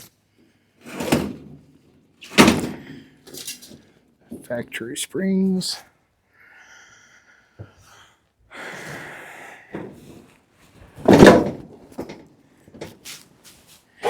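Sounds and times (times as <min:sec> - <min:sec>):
scraping rustle: 0:12.8 - 0:14.0.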